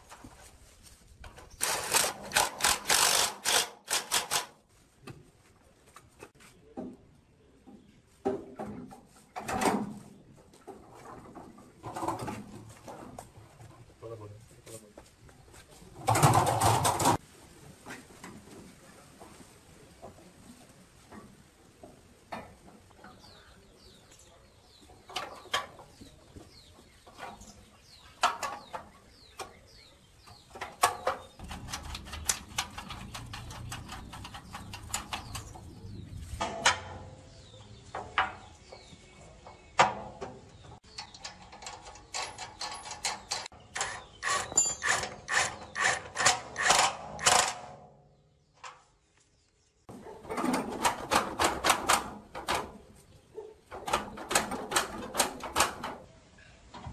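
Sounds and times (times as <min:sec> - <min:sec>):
hand tools on metal: 0:30.4 - 0:35.8, 0:39.5 - 0:47.8
rapid metallic clicks: 0:30.6 - 0:35.7.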